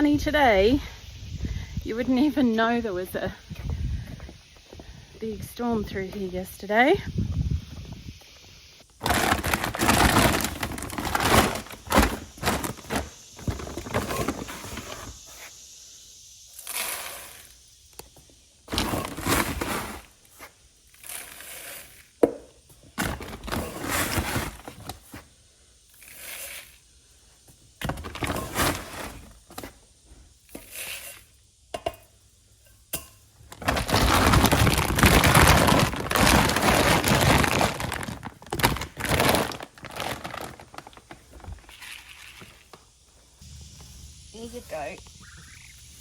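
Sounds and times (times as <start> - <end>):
handling knocks and rustling: 9.0 - 15.2.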